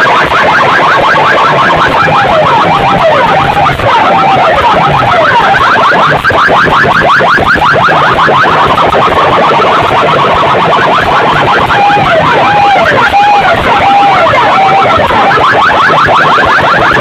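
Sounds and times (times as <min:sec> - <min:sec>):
electronic siren effect: 0:00.0 - 0:17.0.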